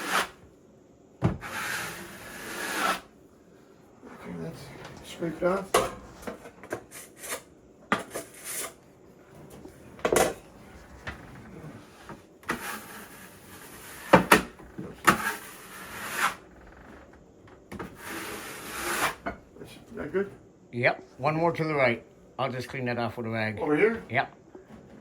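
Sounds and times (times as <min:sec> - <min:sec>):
trowel scraping plaster: 0:00.0 - 0:00.4, 0:01.4 - 0:03.1, 0:06.7 - 0:08.8, 0:12.5 - 0:14.2, 0:15.0 - 0:16.4, 0:18.0 - 0:19.2.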